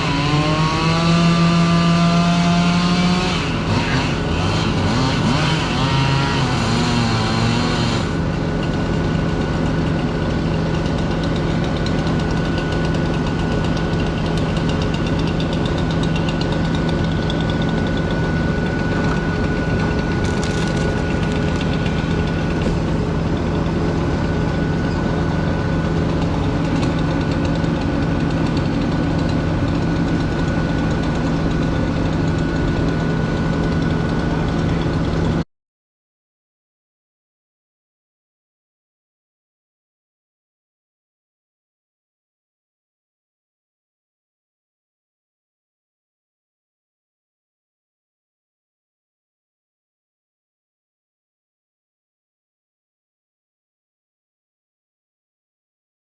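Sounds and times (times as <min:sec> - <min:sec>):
large engine idling: 0:08.0 - 0:35.4.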